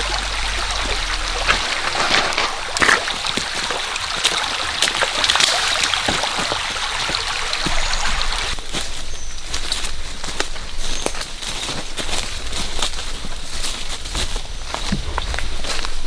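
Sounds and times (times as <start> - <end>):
stream flowing over rocks: 0.0 - 8.6
short water splashes: 0.0 - 8.9.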